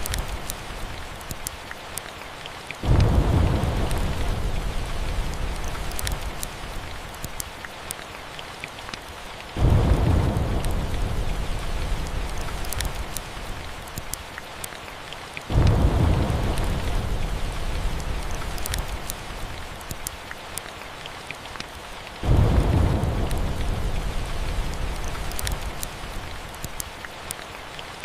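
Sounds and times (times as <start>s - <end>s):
steady rain: 0.0s - 28.0s
thunder rolling: 2.8s - 6.4s, 9.6s - 13.5s, 15.5s - 19.1s, 22.2s - 25.8s.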